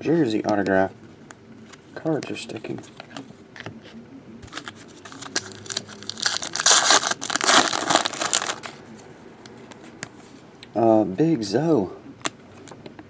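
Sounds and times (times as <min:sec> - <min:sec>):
card pack wrappers crinkling: 0:04.4 - 0:08.8.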